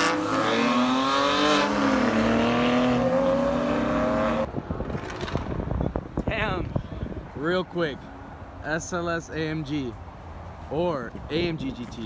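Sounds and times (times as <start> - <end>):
sports car engine revving: 0.0 - 5.3.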